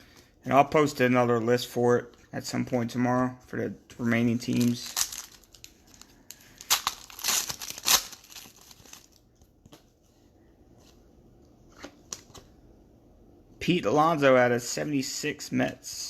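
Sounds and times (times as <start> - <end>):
cards rustling and clicking: 4.4 - 9.9
wrapper tearing and crinkling: 4.5 - 9.2.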